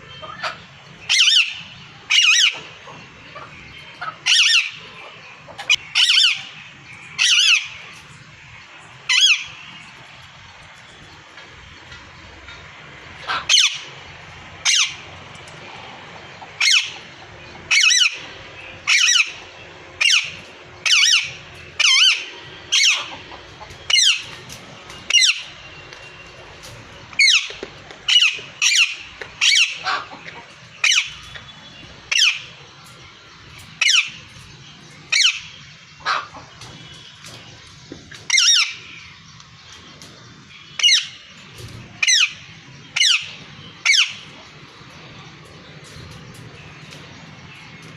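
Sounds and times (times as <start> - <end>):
parrot squawking: 0.1 - 6.6, 7.2 - 8.0, 9.1 - 9.6, 13.2 - 14.0, 14.6 - 15.1, 16.5 - 17.1, 17.7 - 19.4, 20.0 - 24.3, 25.1 - 25.6, 27.2 - 31.4, 32.1 - 32.6, 33.8 - 34.3, 35.1 - 36.5, 38.3 - 39.0, 40.8 - 41.3, 42.0 - 44.4.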